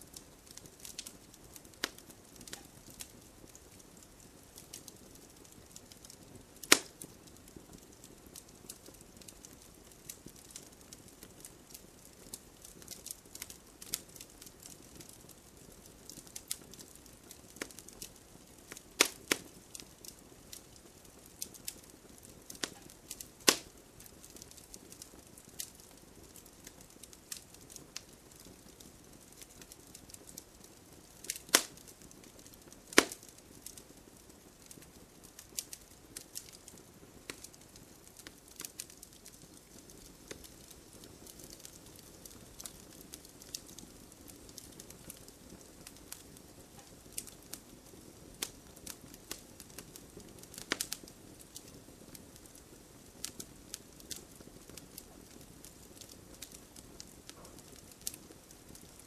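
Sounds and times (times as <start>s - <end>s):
wood fire crackling: 0.0s - 59.0s
sharp pops of fire: 0.1s - 33.9s, 34.6s - 59.0s.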